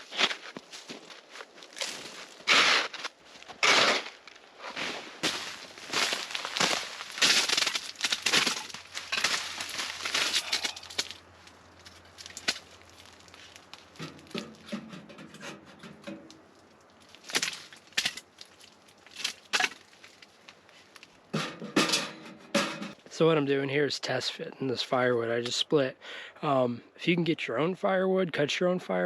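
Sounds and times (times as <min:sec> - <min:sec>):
firewood crunching and cracking: 0:00.0 - 0:14.9, 0:15.7 - 0:21.4.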